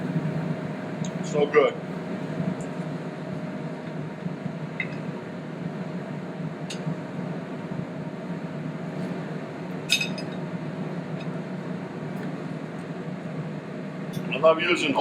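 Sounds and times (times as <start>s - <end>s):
steady background hum: 0.0s - 15.0s
dishware clinking: 9.9s - 10.3s.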